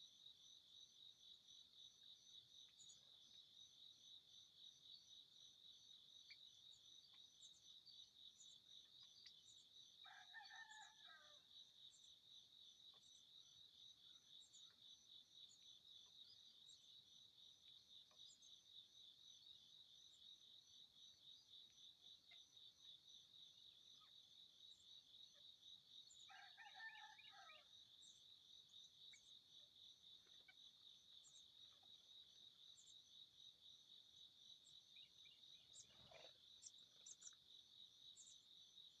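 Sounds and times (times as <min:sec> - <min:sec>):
rooster crowing: 0:10.1 - 0:11.4, 0:26.3 - 0:27.6.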